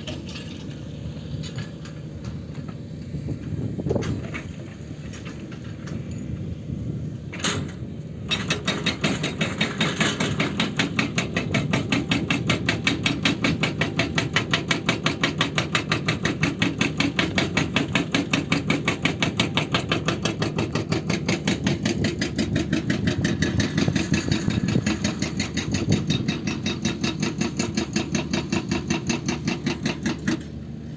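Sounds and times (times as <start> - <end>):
excavator engine running: 0.0 - 30.9
hydraulic breaker hammering: 8.3 - 30.6.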